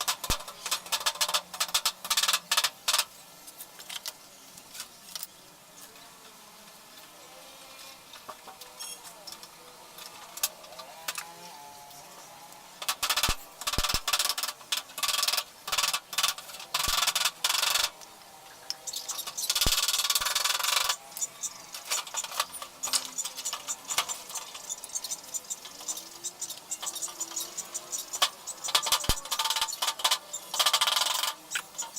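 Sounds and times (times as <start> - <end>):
sharp clicks and knocks: 0.0 - 3.1, 12.8 - 18.1, 18.7 - 31.9.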